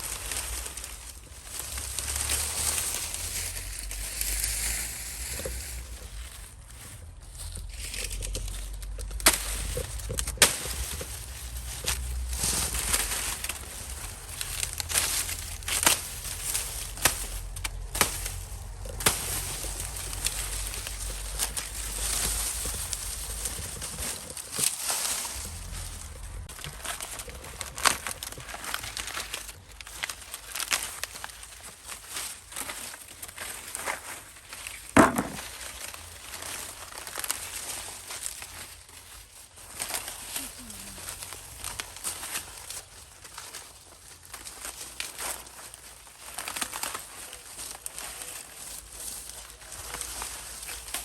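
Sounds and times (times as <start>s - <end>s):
dry corn husks rustling: 0.0s - 51.0s
loud sharp crunch: 7.5s - 28.9s, 34.8s - 35.8s
corn snapping: 7.9s - 24.8s.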